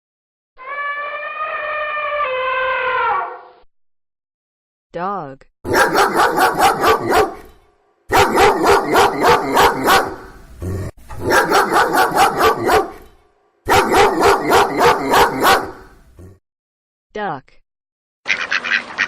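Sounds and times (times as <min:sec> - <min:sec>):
dog barking: 0:05.7 - 0:10.4, 0:11.2 - 0:13.1, 0:13.7 - 0:16.0.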